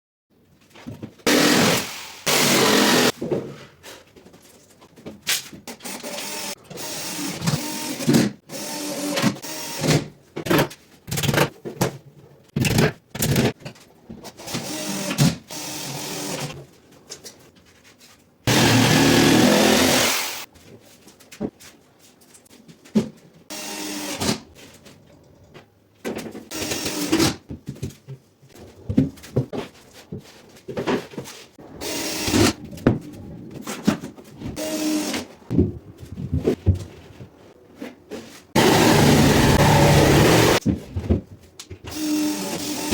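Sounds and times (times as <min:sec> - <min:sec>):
power tool bursts: 0:01.3 - 0:03.1, 0:18.5 - 0:20.5, 0:38.6 - 0:40.6.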